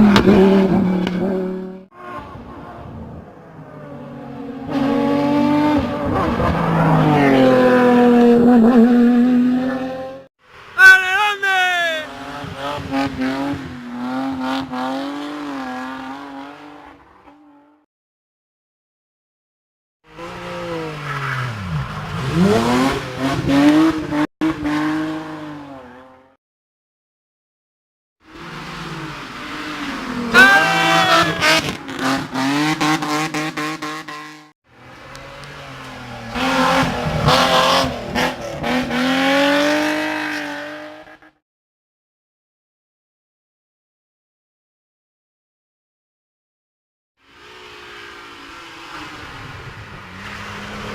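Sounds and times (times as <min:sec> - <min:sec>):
race car engine revving: 0:12.1 - 0:17.1, 0:20.1 - 0:26.0, 0:28.3 - 0:41.3.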